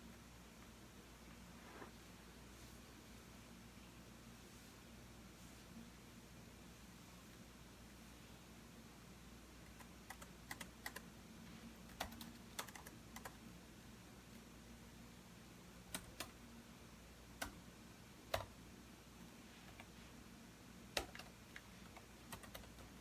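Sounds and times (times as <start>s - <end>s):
faint low hum: 0.0s - 23.0s
keyboard typing: 9.6s - 11.1s, 11.9s - 13.4s, 15.9s - 16.4s, 17.4s - 17.6s, 18.3s - 18.6s, 21.0s - 23.0s.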